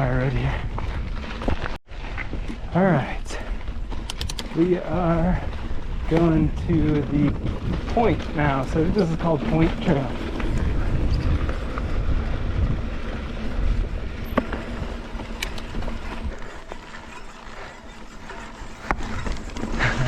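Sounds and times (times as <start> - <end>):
tyre and wind rumble: 0.0 - 20.0
sharp clicks from bike: 3.7 - 4.7, 7.2 - 20.0
bike freehub ratcheting: 4.0 - 4.6, 13.8 - 20.0.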